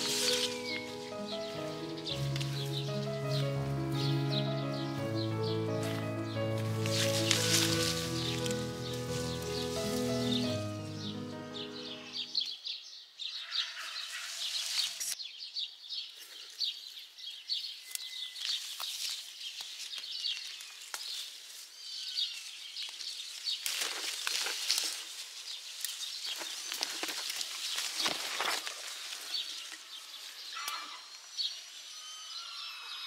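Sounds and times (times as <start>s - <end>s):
scratchy rustling: 0.0s - 4.1s, 5.7s - 11.1s
small birds chirping: 0.0s - 33.0s.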